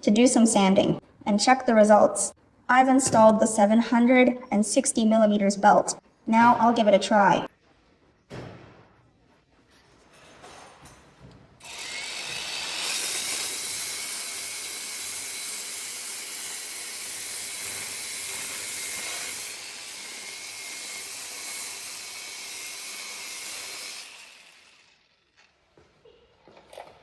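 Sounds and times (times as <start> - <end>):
belt sander sanding metal pipe: 11.6 - 25.2.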